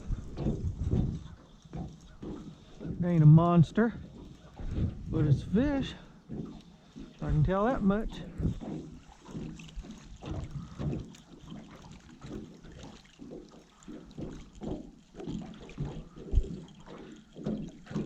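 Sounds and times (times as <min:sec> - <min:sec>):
wind buffeting microphone: 0:00.0 - 0:06.5, 0:07.2 - 0:11.1
water and boat noises: 0:00.0 - 0:18.0.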